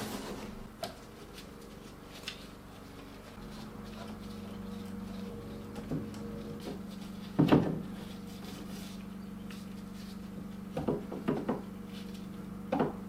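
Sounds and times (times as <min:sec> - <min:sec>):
steady low hum: 0:00.0 - 0:13.0
knocks of things being handled: 0:05.7 - 0:08.0, 0:10.8 - 0:11.7.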